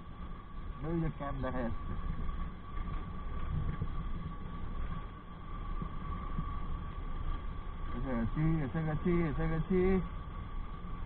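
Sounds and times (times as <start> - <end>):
road and wind noise: 0.0 - 11.0.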